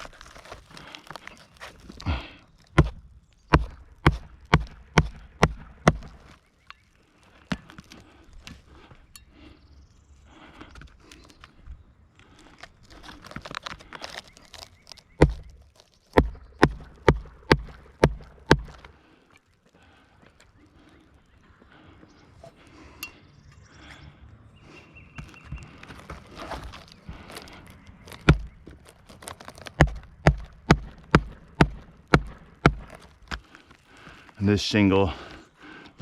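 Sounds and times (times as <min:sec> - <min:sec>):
shingle rustling: 0:00.0 - 0:09.6, 0:10.3 - 0:23.0, 0:24.6 - 0:36.0
hatchet hammering nails into shingles: 0:02.7 - 0:06.3, 0:16.2 - 0:18.9, 0:29.6 - 0:33.4.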